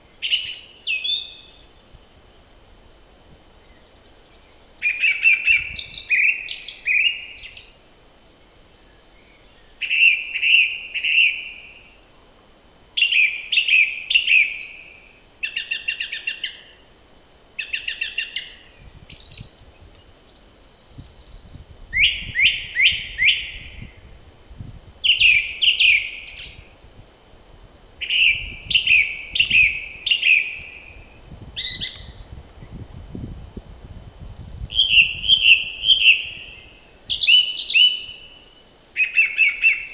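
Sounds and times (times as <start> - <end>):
songbird singing: 0.0 - 39.9
wind rumble on microphone: 1.2 - 6.7, 18.5 - 38.4.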